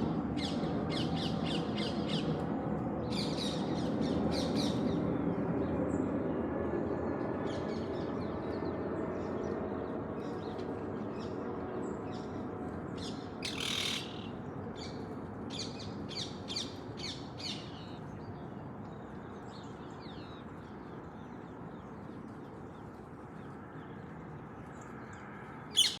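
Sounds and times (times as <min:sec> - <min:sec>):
birds chirping and squawking: 0:13.4 - 0:14.3, 0:25.8 - 0:26.0.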